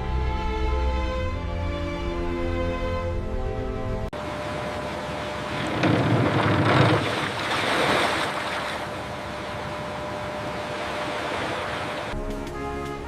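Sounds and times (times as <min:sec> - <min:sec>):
music: 0:00.0 - 0:04.1, 0:12.1 - 0:13.0
sea waves washing: 0:04.2 - 0:12.2.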